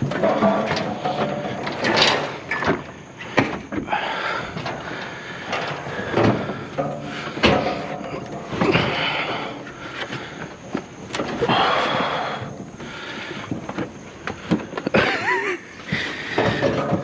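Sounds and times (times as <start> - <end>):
treadmill knocking on metal trailer: 16.0 - 17.0.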